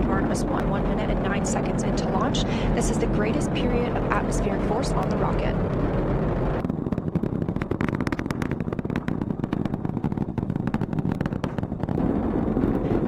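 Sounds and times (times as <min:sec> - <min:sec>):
rocket roaring in flight: 0:00.0 - 0:13.0
rapid crackle of pops: 0:05.0 - 0:13.0.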